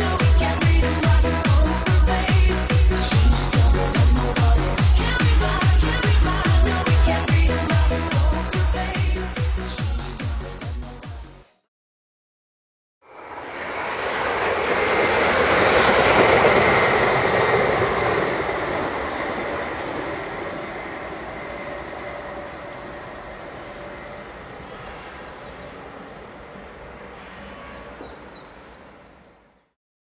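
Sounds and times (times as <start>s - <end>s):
train passing: 13.0s - 29.5s.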